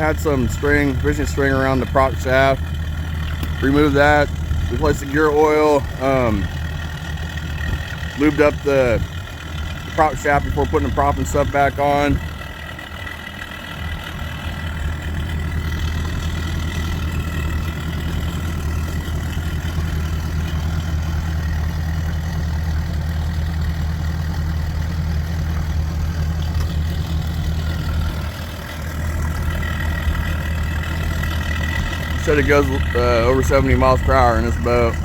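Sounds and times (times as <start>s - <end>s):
outboard motor idling: 0.0s - 35.0s.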